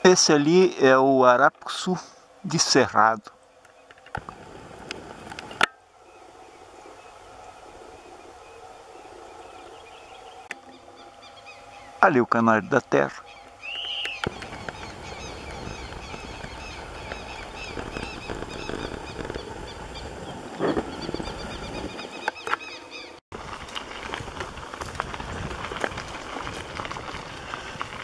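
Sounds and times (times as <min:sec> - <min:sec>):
crackling rustle: 0:00.0 - 0:12.0, 0:12.7 - 0:28.0
steady low rumble: 0:02.2 - 0:22.2
songbird chirping high notes: 0:05.4 - 0:12.2, 0:12.8 - 0:20.1.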